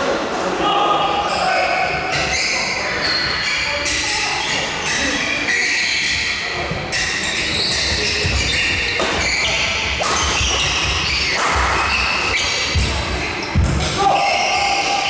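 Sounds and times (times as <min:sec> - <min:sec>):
shoes squeaking on court floor: 0:02.1 - 0:14.6
racket hitting shuttlecock: 0:07.8 - 0:12.9.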